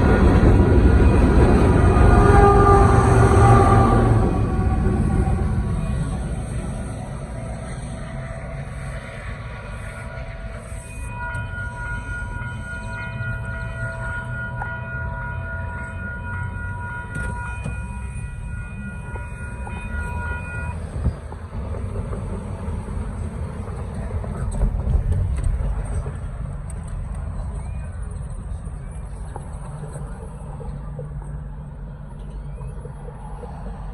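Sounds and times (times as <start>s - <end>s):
locomotive air horn chord: 0.0s - 21.0s
freight train rumbling: 0.0s - 33.9s.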